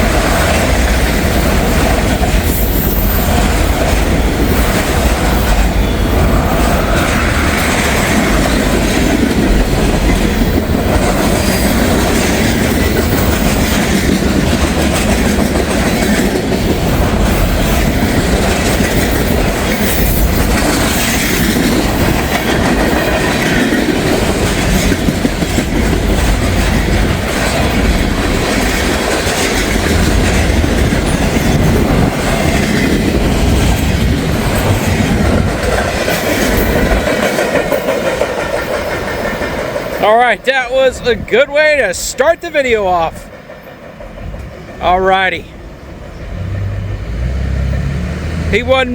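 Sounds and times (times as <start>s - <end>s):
freight train rumbling past: 0.0s - 48.9s.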